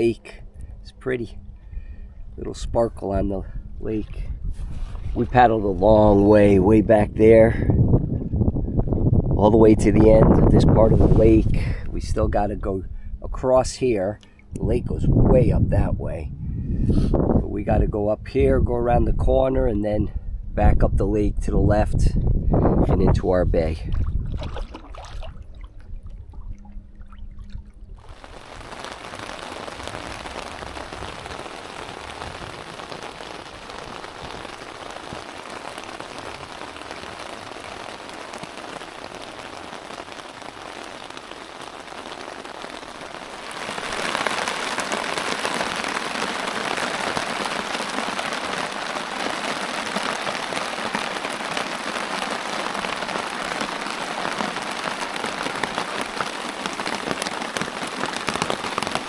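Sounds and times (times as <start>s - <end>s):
rain falling: 28.0s - 59.0s.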